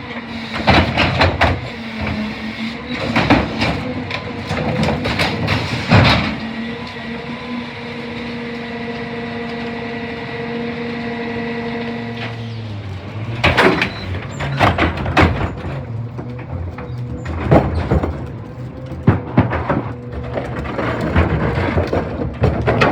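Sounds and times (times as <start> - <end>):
hydraulic whine: 0.0 - 22.9.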